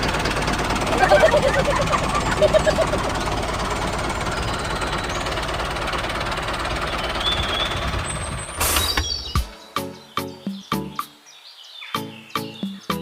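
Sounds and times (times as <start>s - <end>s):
tractor engine knocking rattle: 0.0s - 9.1s.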